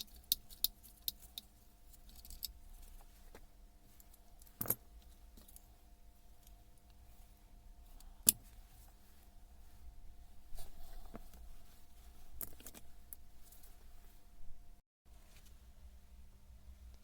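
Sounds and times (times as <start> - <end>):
small metal parts clicking: 0.0 - 2.6
faint steady hum: 0.0 - 17.0.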